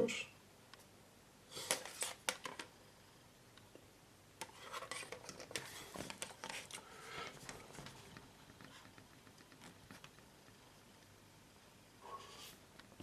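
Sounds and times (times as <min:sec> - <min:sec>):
plastic rustling: 0:04.4 - 0:08.2.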